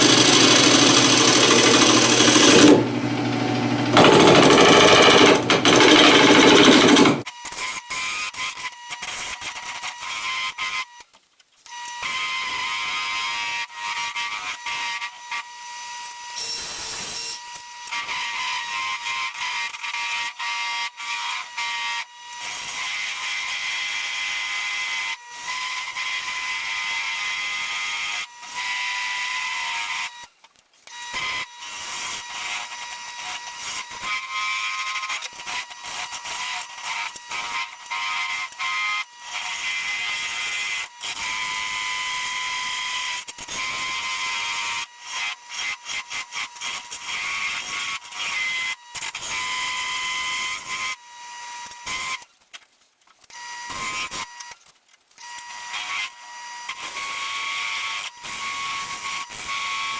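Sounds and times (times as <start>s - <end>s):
tool scraping spinning wood: 0.0s - 7.2s
wood lathe whining: 0.0s - 7.2s.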